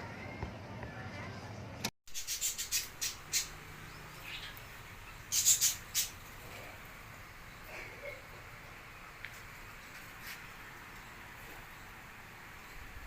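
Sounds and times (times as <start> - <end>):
birds chirping: 1.6 - 13.0.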